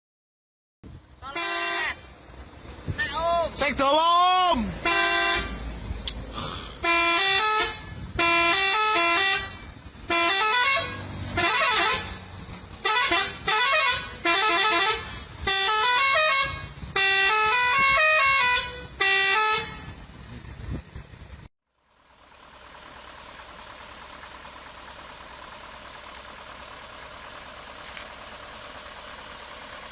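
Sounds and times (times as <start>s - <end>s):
musical vehicle horn blasts: 1.2s - 2.1s, 4.8s - 5.7s, 6.8s - 20.1s.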